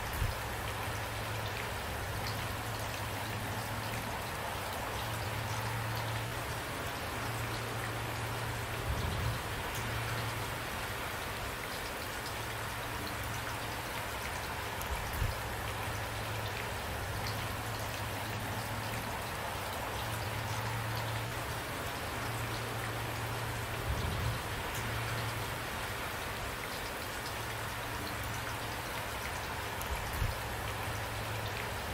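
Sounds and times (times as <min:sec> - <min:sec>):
steady rainfall: 0:00.0 - 0:31.9.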